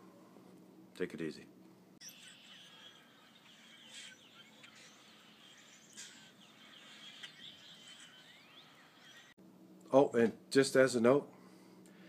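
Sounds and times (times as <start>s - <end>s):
outdoor background hiss: 0.0s - 12.0s
faint bird chirps: 2.0s - 9.4s.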